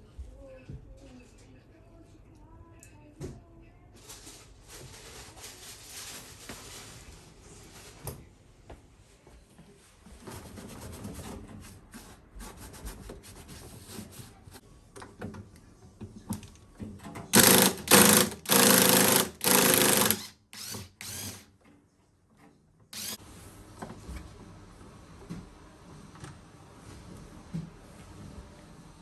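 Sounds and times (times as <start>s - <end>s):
parts being handled and rubbed: 10.1s - 14.6s
handheld power tool bursts: 17.4s - 21.5s, 23.0s - 23.2s.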